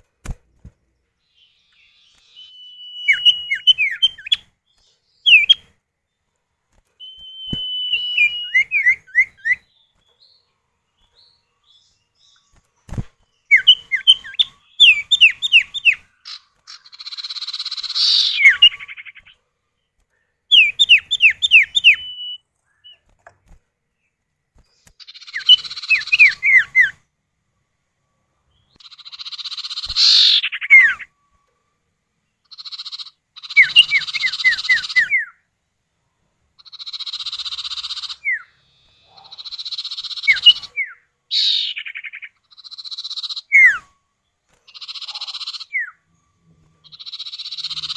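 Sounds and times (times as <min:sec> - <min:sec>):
descending whistled bird notes: 0:01.2 - 0:05.7, 0:07.0 - 0:10.4, 0:13.4 - 0:19.4, 0:20.5 - 0:23.1, 0:25.0 - 0:27.1, 0:28.5 - 0:31.2, 0:32.6 - 0:35.4, 0:36.7 - 0:44.0
harsh buzzy bird rasps: 0:13.5 - 0:19.4, 0:25.0 - 0:27.0, 0:28.8 - 0:31.1, 0:32.5 - 0:35.4, 0:36.6 - 0:43.9, 0:44.7 - 0:46.1, 0:46.8 - 0:47.9.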